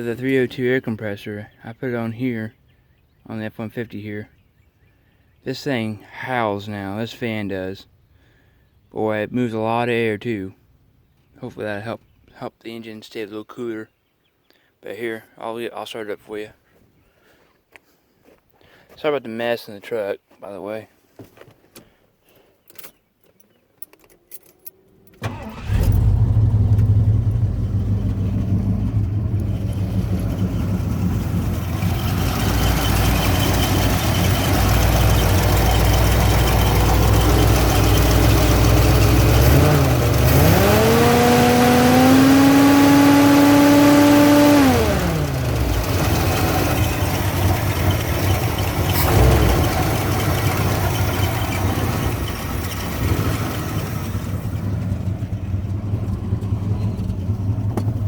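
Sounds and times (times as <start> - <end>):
truck engine starting and idling: 25.0 - 58.0
engine revving: 25.2 - 58.0.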